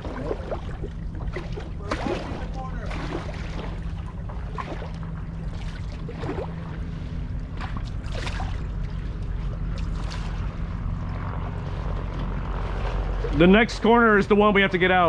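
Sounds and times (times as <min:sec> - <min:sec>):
steady low rumble: 0:00.0 - 0:15.0
water splashes: 0:00.0 - 0:15.0.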